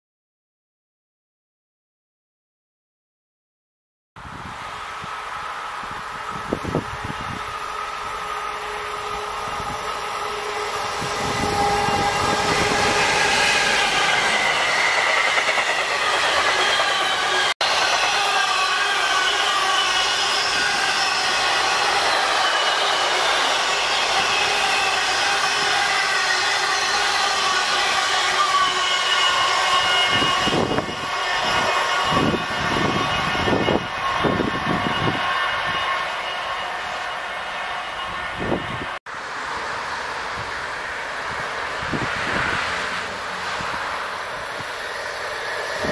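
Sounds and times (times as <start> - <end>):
wind buffeting microphone: 4.2 - 7.6, 10.8 - 16.6, 30.1 - 35.8, 41.2 - 42.8, 45.6 - 45.9
freight train passing: 4.2 - 45.9.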